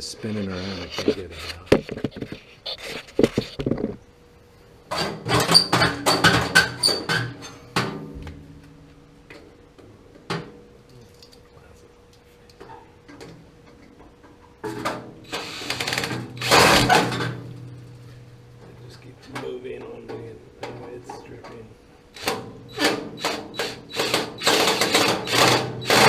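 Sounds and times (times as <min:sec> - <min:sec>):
power drill running: 0:15.3 - 0:17.3, 0:22.1 - 0:26.0.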